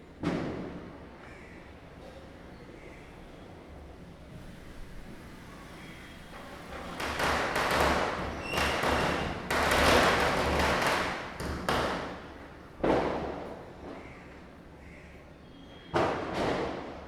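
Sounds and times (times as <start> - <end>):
firecrackers bursting: 7.0 - 11.4.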